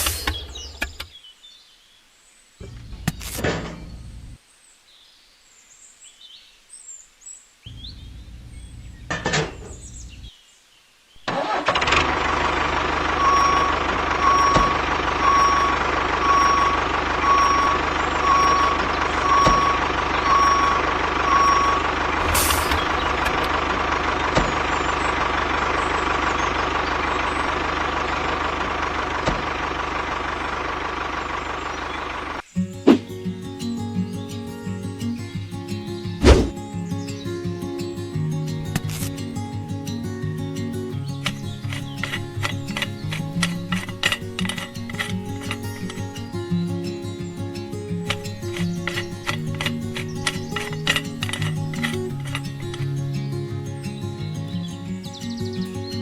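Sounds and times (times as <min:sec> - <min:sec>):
vehicle engine running: 0:11.4 - 0:32.4, 0:38.2 - 0:56.0
reversing beeper: 0:12.0 - 0:32.4.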